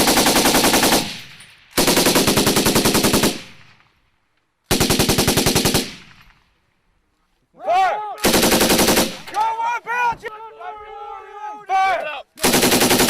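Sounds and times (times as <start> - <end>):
machine gun bursts: 12.4 - 13.0.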